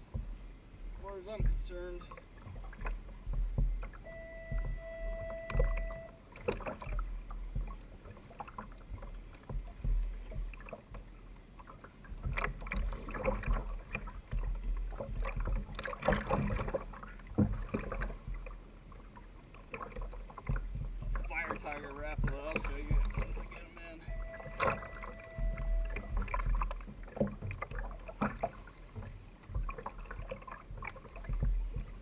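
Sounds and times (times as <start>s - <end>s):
knocks and thumps: 0.0s - 0.5s, 1.2s - 11.1s, 12.1s - 18.7s, 19.8s - 32.0s
water sloshing against kayak hull: 0.0s - 32.0s
short steady tone: 4.0s - 6.2s, 23.8s - 26.5s.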